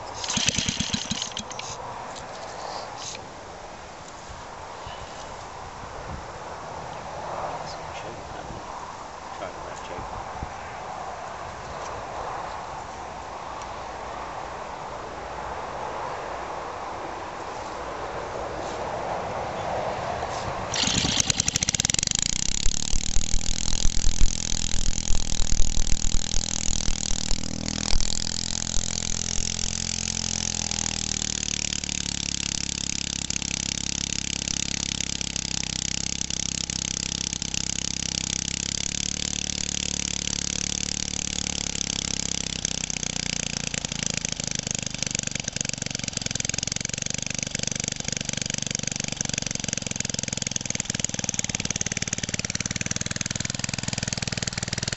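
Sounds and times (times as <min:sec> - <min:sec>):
small engine driving water pump: 0:00.0 - 0:03.3, 0:20.7 - 0:54.9.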